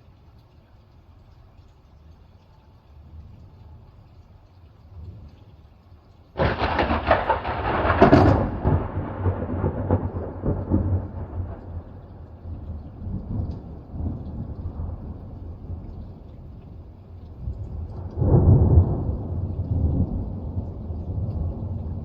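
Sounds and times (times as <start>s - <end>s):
thunder crack: 6.4s - 15.8s
thunder rumble: 6.4s - 22.0s.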